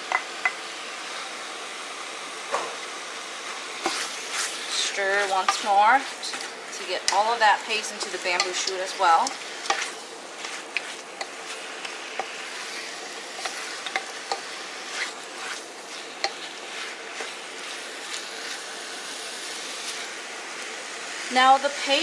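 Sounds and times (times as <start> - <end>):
food sizzling in a pot: 0.0 - 22.0
utensil scraping a pot: 3.8 - 18.6.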